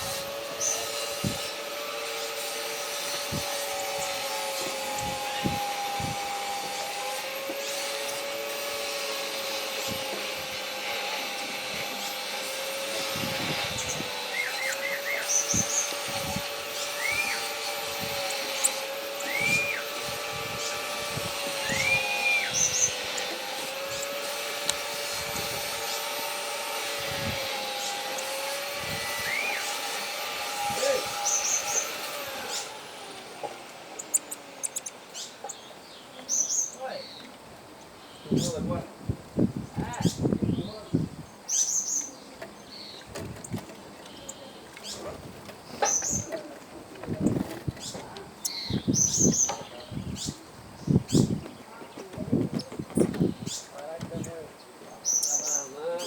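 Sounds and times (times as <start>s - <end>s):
machine-like hum: 0.0s - 35.6s
small birds chirping: 0.0s - 56.0s.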